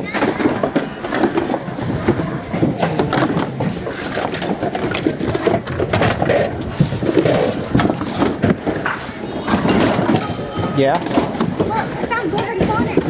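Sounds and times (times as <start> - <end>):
crowd noise: 0.0 - 5.9, 7.1 - 13.0
hard objects clattering in a bin: 0.0 - 13.0.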